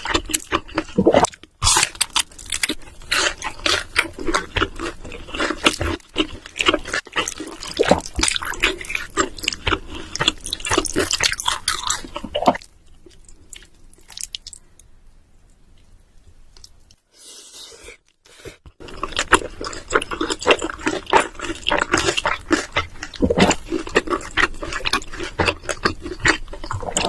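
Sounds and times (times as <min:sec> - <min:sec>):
wet chewing noises: 0:18.0 - 0:27.0.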